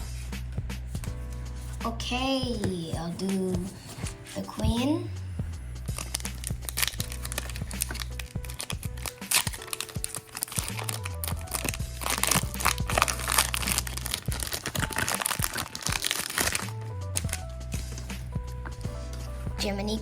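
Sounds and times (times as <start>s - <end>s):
background music with steady beat: 0.0s - 20.0s
trading cards being handled: 2.5s - 5.0s, 5.8s - 19.6s
foil wrapper crinkling: 5.9s - 19.2s.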